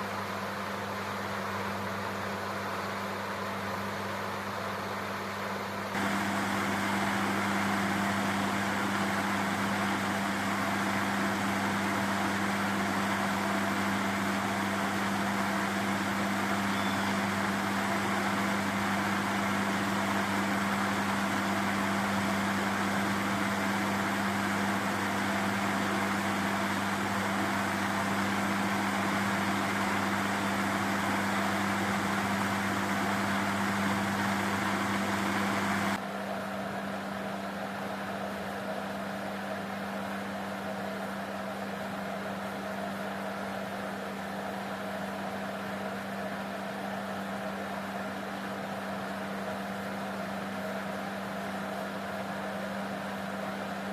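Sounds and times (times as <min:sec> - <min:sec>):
electric cooling fan humming: 0:00.0 - 0:37.0.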